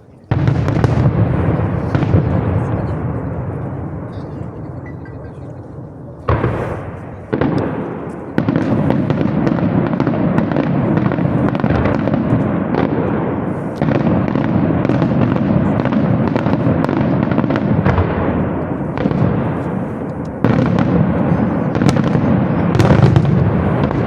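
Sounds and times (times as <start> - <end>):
firework bangs: 0.0 - 24.0
firework bursts and crackling: 0.0 - 24.0.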